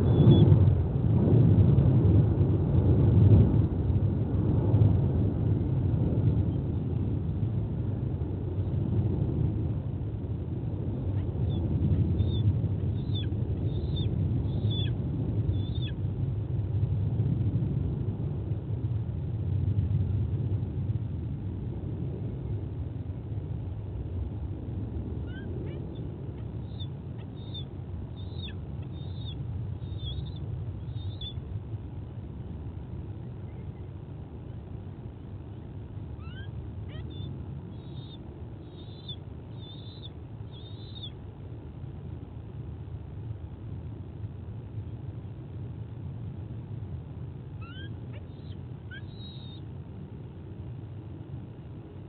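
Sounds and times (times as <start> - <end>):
bird chirping: 0.0 - 0.4, 12.2 - 16.0, 25.3 - 31.4, 36.2 - 41.2, 47.6 - 49.6
wind buffeting microphone: 0.0 - 52.0.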